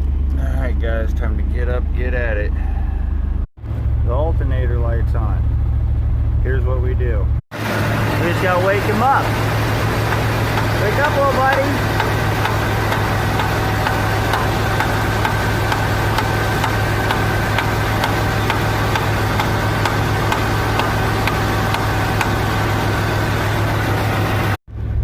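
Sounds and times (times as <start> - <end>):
car engine idling: 0.0 - 25.0
light regular engine tick: 10.0 - 22.4.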